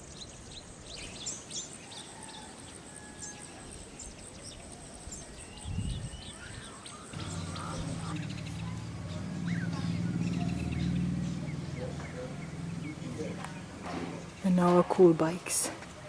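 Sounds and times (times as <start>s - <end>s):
birds chirping: 0.0s - 16.0s
low hum: 7.2s - 14.5s.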